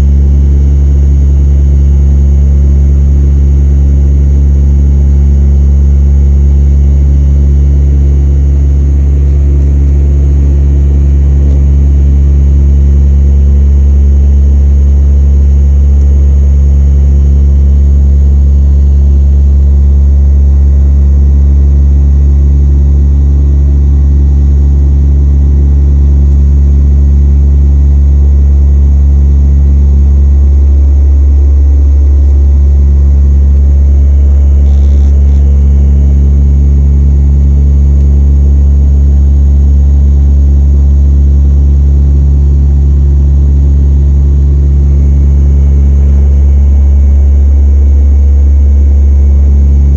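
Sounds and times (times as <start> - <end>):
propeller drone: 6.2 - 21.0, 30.2 - 39.6, 43.1 - 49.9
steady engine tones: 31.6 - 38.7.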